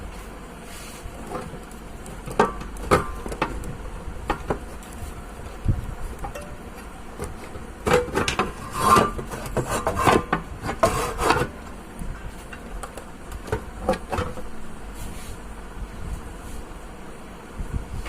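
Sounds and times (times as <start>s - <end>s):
faint steady hum: 0.0s - 18.0s
irregular scraping and rubbing: 0.1s - 2.3s, 4.6s - 12.6s, 14.0s - 16.7s.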